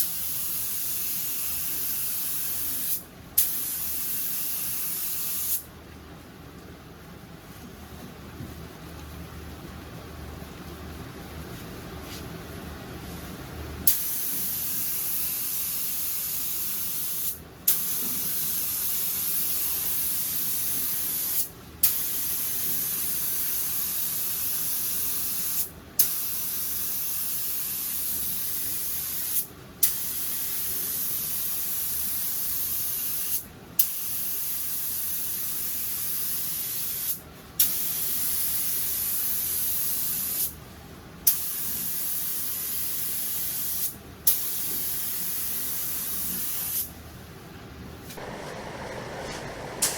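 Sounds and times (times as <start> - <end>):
sharp burst of air: 48.1 - 49.9
paint spray gun hissing: 48.2 - 49.9.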